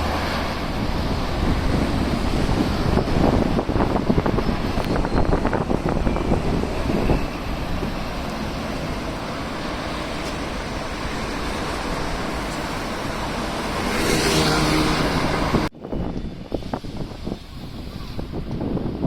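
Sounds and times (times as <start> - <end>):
street traffic: 0.0 - 19.0
wind buffeting microphone: 0.0 - 19.0
vehicle passing close by: 5.4 - 15.7.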